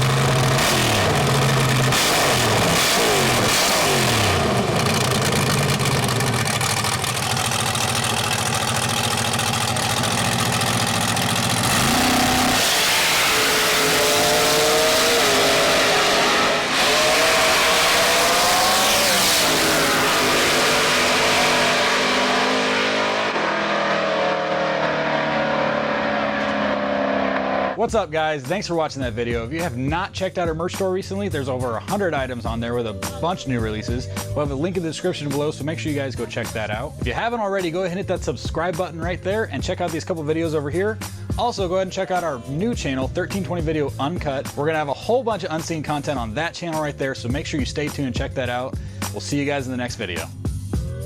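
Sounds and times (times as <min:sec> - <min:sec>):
drag-race engine revving: 0:00.0 - 0:27.8.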